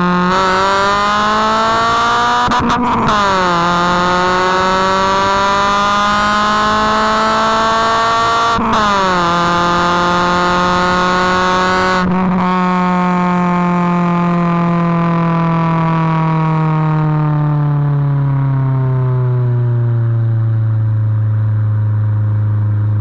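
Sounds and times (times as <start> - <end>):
car engine at high revs: 0.0 - 23.0.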